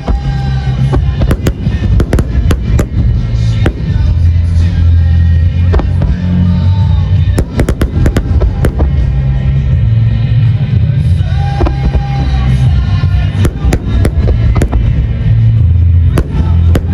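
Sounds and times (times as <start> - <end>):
music: 0.0 - 16.9
firework shells bursting: 0.8 - 4.3, 7.4 - 9.0, 13.4 - 15.0, 16.2 - 16.9
deep booming with sharp cracks: 1.0 - 4.2, 16.2 - 16.9.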